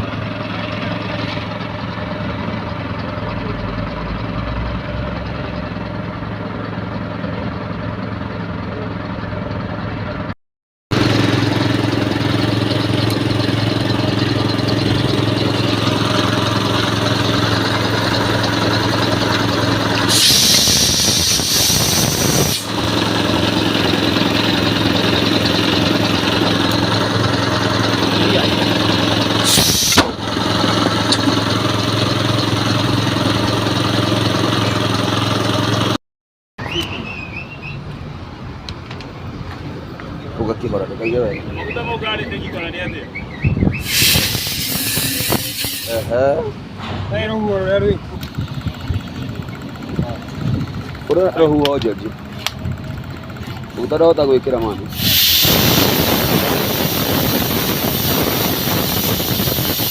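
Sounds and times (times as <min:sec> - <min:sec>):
engine idling: 0:00.0 - 0:36.0, 0:43.8 - 0:59.9
loud hiss: 0:20.0 - 0:22.8, 0:29.4 - 0:30.2, 0:43.8 - 0:46.1, 0:54.9 - 0:59.9.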